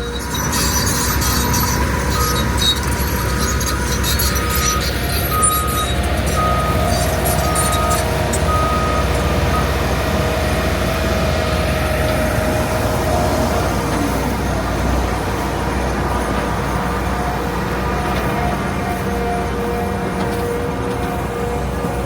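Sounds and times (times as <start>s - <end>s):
backup alarm beeping: 0.0s - 22.0s
heavy diesel equipment running: 0.0s - 22.0s.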